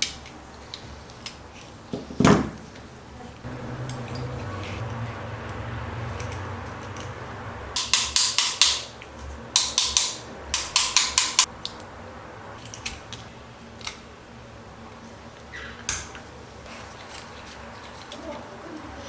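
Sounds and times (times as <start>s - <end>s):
sharp strokes on metal parts: 5.6s - 9.0s, 9.6s - 11.5s.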